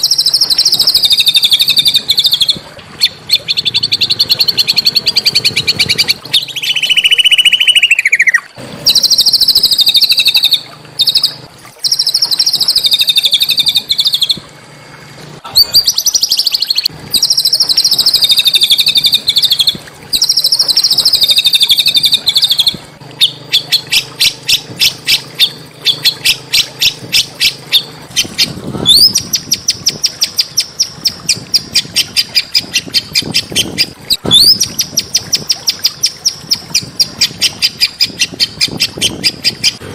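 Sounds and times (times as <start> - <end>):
songbird trilling and chipping: 0.0 - 14.4.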